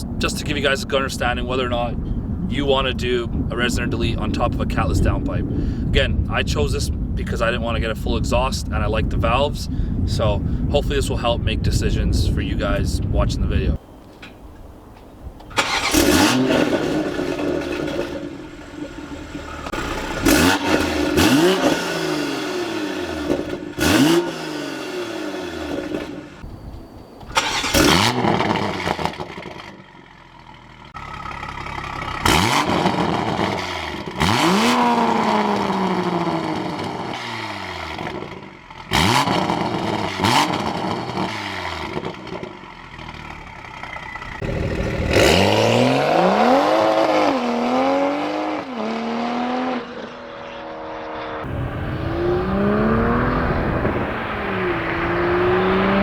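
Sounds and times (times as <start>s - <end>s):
car engine revving: 15.5s - 29.8s, 30.4s - 56.0s.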